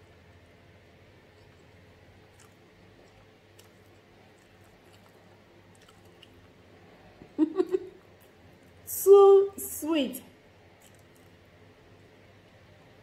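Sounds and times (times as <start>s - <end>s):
quiet chewing: 1.1s - 7.3s, 10.7s - 13.0s.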